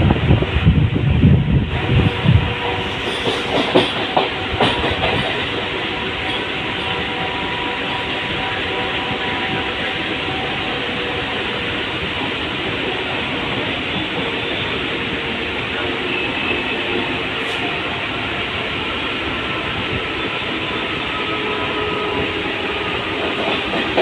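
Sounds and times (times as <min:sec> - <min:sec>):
train roaring: 0:00.0 - 0:24.0
wind buffeting microphone: 0:00.0 - 0:24.0
train wheels clacking over joints: 0:02.8 - 0:07.0, 0:23.0 - 0:24.0.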